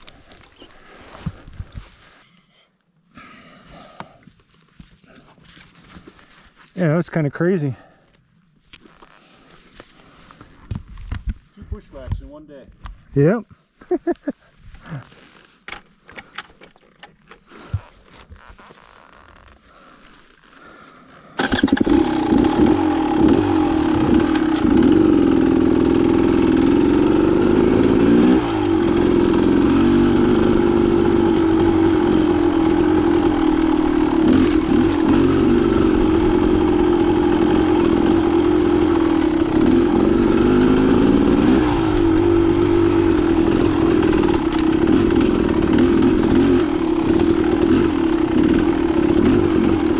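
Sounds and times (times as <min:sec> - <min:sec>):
dirt bike engine revving: 0:21.4 - 0:49.9.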